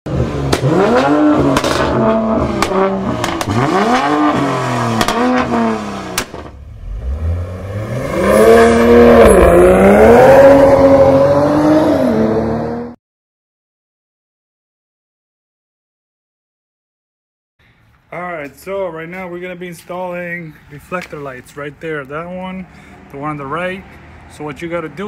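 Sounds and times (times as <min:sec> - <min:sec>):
car engine revving: 0:00.1 - 0:13.0.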